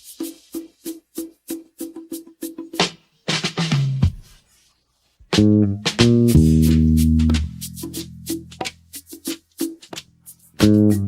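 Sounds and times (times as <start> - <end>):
electric bass guitar notes: 5.3 - 8.6, 10.6 - 11.0.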